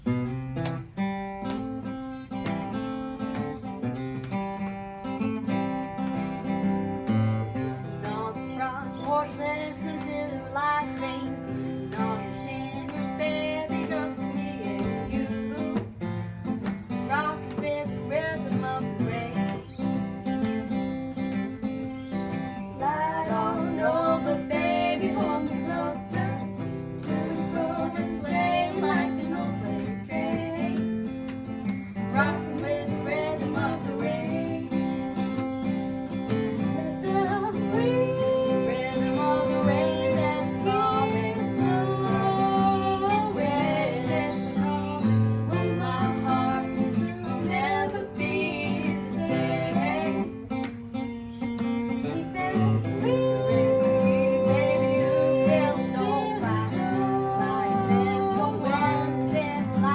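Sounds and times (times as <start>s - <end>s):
acoustic guitar chords: 0.0s - 59.9s
person singing: 7.2s - 16.0s, 22.6s - 31.0s, 32.1s - 35.4s, 36.6s - 50.5s, 52.0s - 59.9s.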